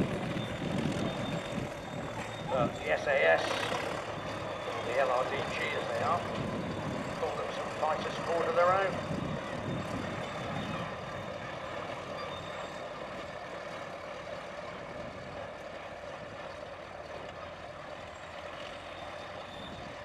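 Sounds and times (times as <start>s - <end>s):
distant engine noise: 0.0s - 20.0s.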